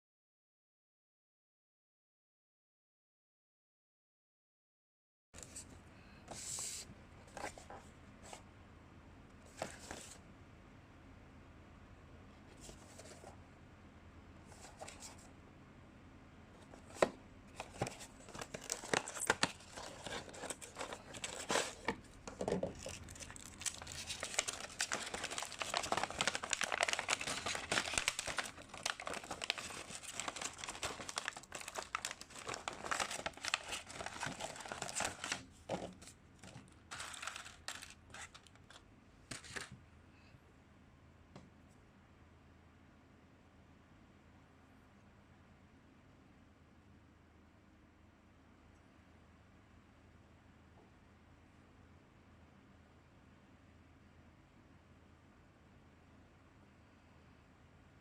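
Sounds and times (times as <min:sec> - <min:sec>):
plastic and cardboard crinkling: 0:09.5 - 0:10.2, 0:16.6 - 0:39.8.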